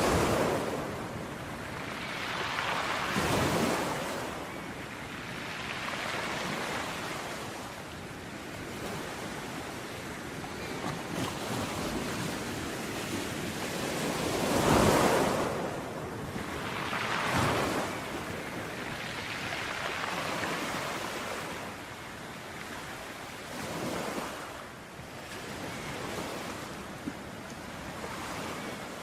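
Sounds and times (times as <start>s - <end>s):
ocean waves breaking on shore: 0.0s - 29.0s.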